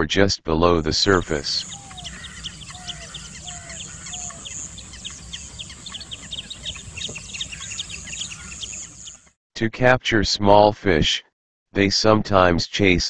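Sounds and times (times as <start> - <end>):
many birds chirping: 1.1 - 9.3
low falling bird calls: 1.2 - 9.3
low background rumble: 1.3 - 9.2.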